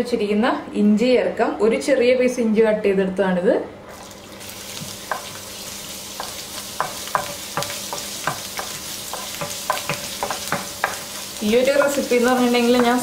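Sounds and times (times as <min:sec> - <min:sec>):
ginger sizzling in hot oil: 0:03.9 - 0:13.0
wooden spatula scraping a pan: 0:06.2 - 0:13.0.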